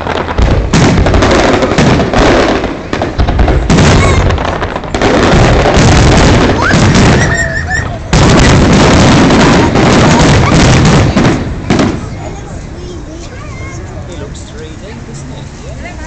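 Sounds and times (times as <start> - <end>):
fireworks booms: 0.0 - 12.7
fireworks crackling bursts: 0.0 - 16.0.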